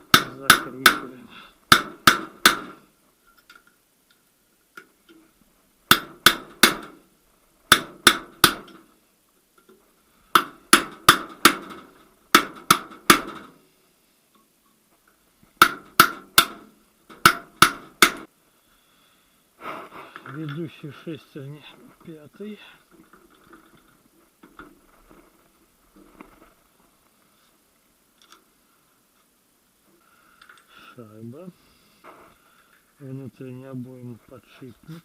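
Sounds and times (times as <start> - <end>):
hammer striking steel: 0.0 - 1.1, 1.7 - 2.8, 5.9 - 7.0, 7.7 - 8.8, 10.4 - 13.5, 15.6 - 18.3.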